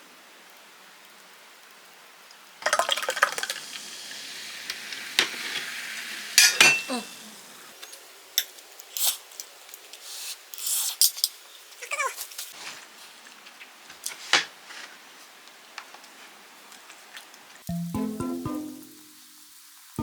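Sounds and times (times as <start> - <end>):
hissing: 2.6 - 8.1.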